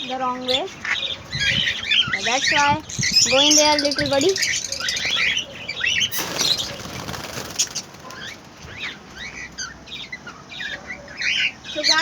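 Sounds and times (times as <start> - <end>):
budgerigars chirping: 0.0 - 12.0
wing flapping: 6.0 - 8.8.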